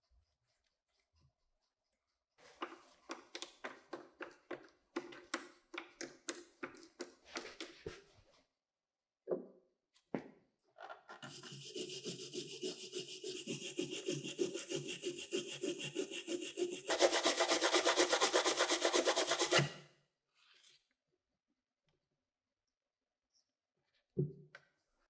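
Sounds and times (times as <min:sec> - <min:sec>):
rapid rubbing strokes: 0:11.3 - 0:19.7.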